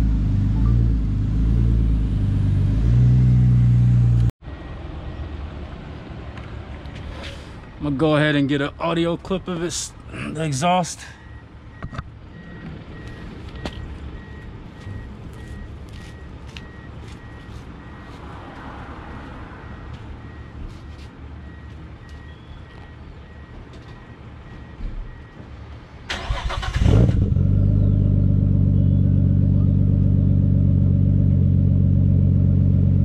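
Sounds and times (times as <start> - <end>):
faint repeated beeping: 11.2 - 18.3, 19.6 - 20.6, 21.4 - 25.5
car engine cranking and idling: 26.0 - 33.0.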